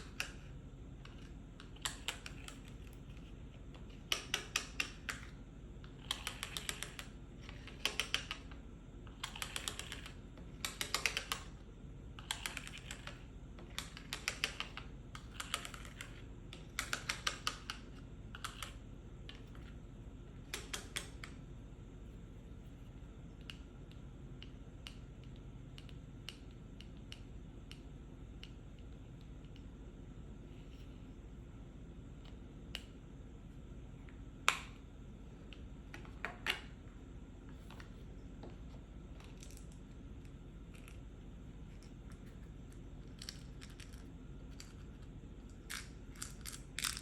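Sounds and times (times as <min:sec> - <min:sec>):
fingers tapping on pill box: 0:03.8 - 0:05.3, 0:05.9 - 0:11.5, 0:12.2 - 0:17.8.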